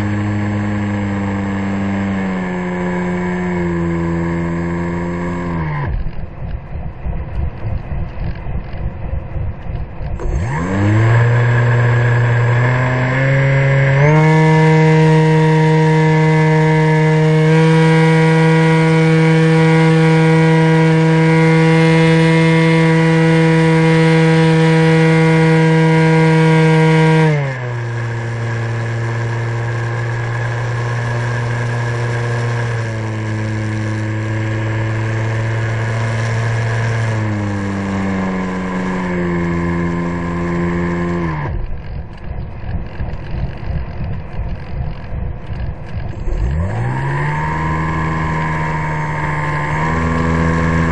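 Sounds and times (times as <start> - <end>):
model plane electric motor whine: 0.0 - 6.3, 10.0 - 50.9
choppy wind noise: 2.5 - 14.0, 27.7 - 50.9.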